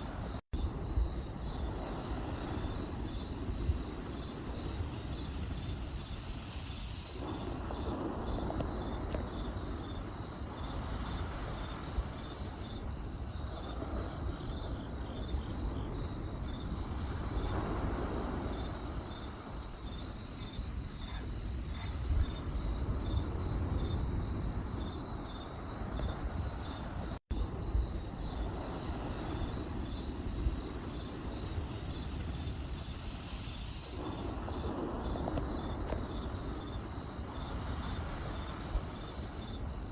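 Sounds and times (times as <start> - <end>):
crickets chirping: 0.0 - 39.9
campfire crackling and popping: 1.8 - 23.6, 29.2 - 39.2.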